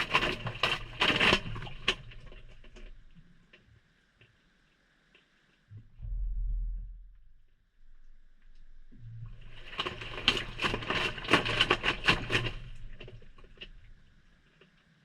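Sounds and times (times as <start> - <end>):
wet laundry tumbling and sloshing: 0.0 - 3.1, 9.4 - 14.0.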